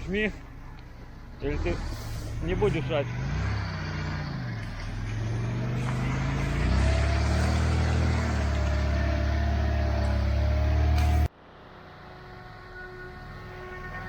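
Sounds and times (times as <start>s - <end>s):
vehicle engine revving: 1.3s - 11.3s.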